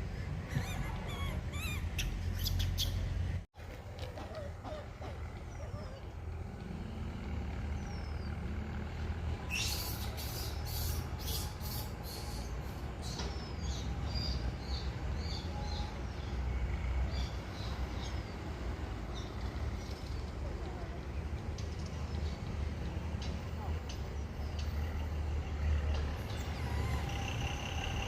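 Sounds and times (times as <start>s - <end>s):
small birds chirping: 0.0s - 3.4s, 7.5s - 22.7s
traffic rumble: 0.0s - 28.0s.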